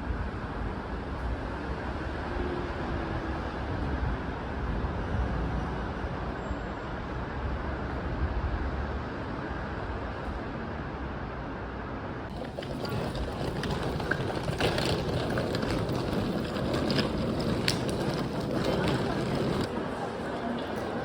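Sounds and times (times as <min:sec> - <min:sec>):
moving vehicle rumble: 0:11.9 - 0:21.0.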